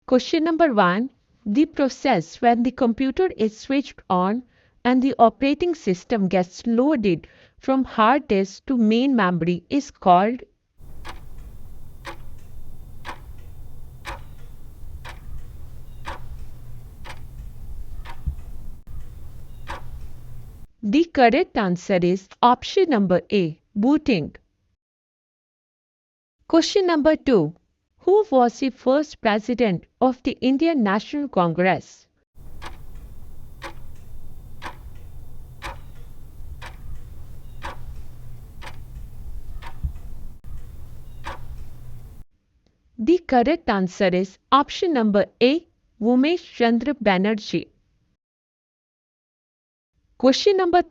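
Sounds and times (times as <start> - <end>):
countdown timer ticking: 10.8 - 20.7, 32.4 - 42.2
steady low hum: 10.8 - 20.7, 32.4 - 42.2.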